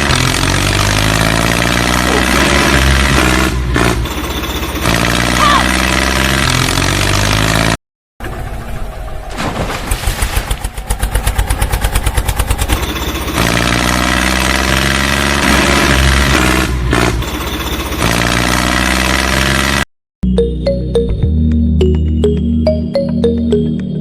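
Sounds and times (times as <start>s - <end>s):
tractor engine chugging: 3.8s - 5.1s, 10.0s - 14.0s, 17.0s - 18.4s.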